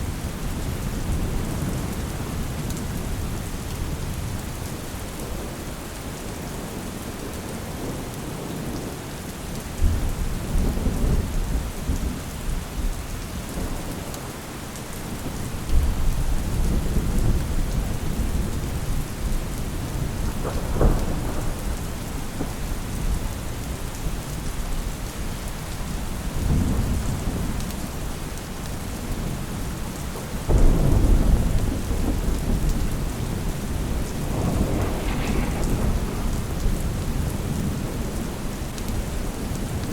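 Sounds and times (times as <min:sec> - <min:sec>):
steady rain falling: 0:00.0 - 0:39.9
thunder rumbling: 0:15.2 - 0:23.9, 0:30.2 - 0:39.9
sharp thunder crack: 0:30.5 - 0:38.5.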